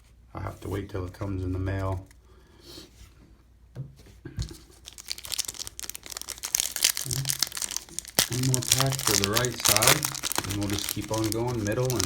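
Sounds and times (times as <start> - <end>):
foil wrapper tearing and crinkling: 4.8 - 12.0.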